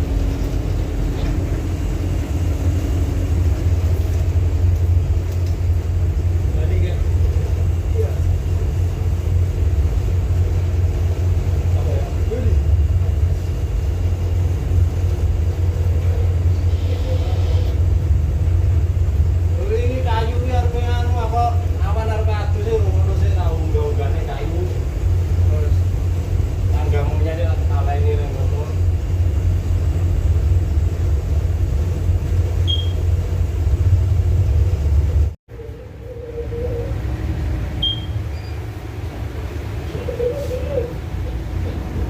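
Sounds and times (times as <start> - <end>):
ship low rumble: 0.0 - 42.0
short high beep: 32.7 - 33.0, 37.8 - 38.6.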